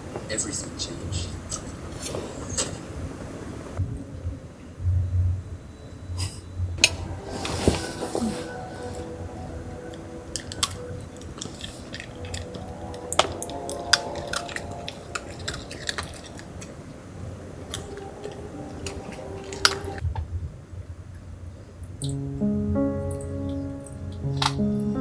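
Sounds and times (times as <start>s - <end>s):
person chewing food: 10.4s - 16.9s.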